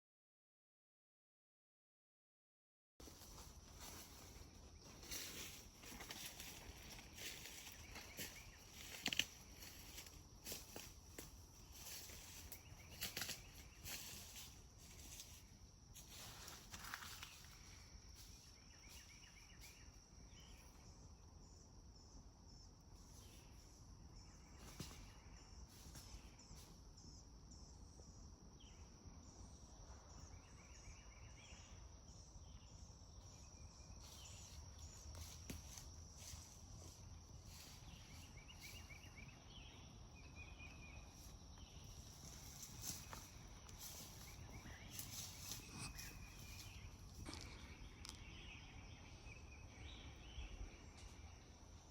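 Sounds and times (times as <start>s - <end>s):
high-pitched insect drone: 41.1s - 47.9s
small chirps: 41.2s - 49.0s.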